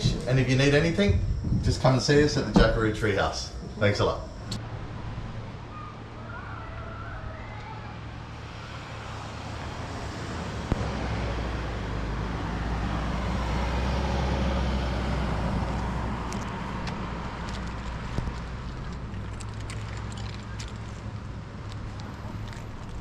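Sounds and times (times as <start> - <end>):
road vehicle passing: 4.6 - 23.0.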